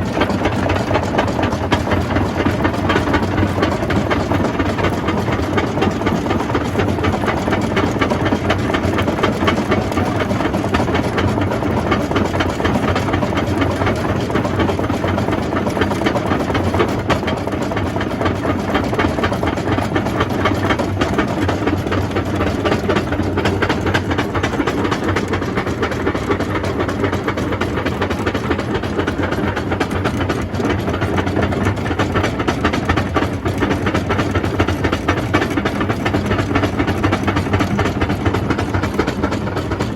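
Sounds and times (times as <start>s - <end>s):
jaw crusher rumbling: 0.0s - 39.9s.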